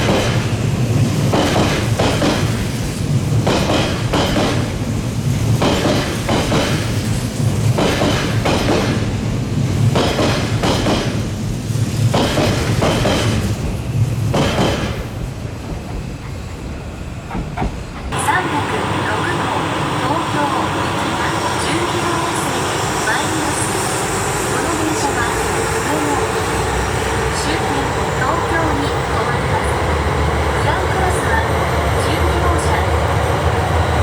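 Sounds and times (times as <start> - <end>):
train wheels knocking over rail joints: 0.0 - 16.4, 17.2 - 18.9
electric train rumble: 0.0 - 34.0.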